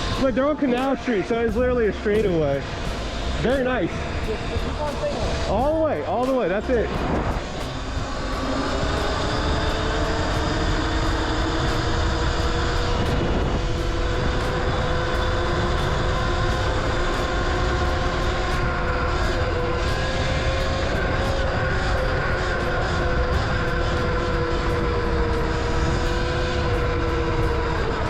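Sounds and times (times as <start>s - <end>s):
electric motor whining: 0.0s - 28.0s
wind rumble on microphone: 0.0s - 28.0s.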